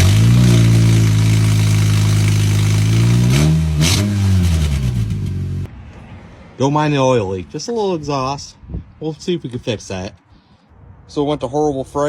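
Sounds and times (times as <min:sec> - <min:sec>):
car engine revving: 0:00.0 - 0:05.7.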